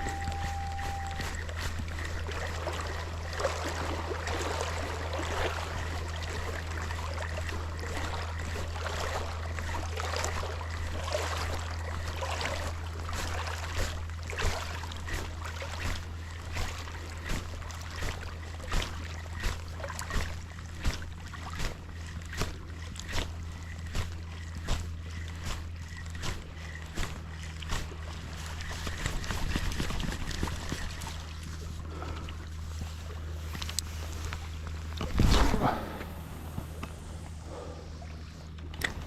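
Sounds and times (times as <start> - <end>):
regular pulses: 0.0 - 2.1
water washing along shore: 0.0 - 37.4
low hum: 0.0 - 39.0.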